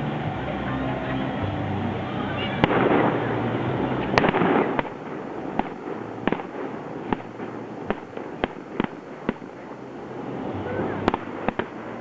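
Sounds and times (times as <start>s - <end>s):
firework bang with rumbling tail: 2.6s - 3.2s, 4.2s - 9.5s
sharp firework cracks: 2.6s - 3.4s, 4.0s - 9.9s, 11.0s - 12.0s.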